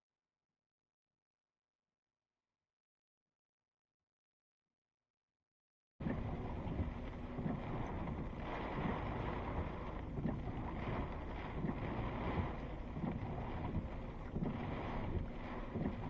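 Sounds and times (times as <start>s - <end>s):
wind buffeting microphone: 6.0s - 16.0s.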